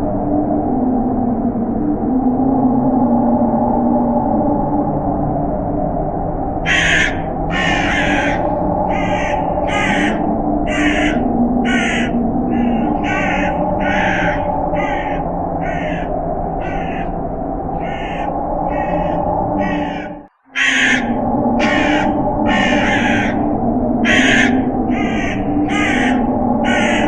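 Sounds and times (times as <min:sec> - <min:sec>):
low droning background: 0:00.0 - 0:27.0
crows cawing: 0:06.7 - 0:17.2, 0:17.8 - 0:27.0.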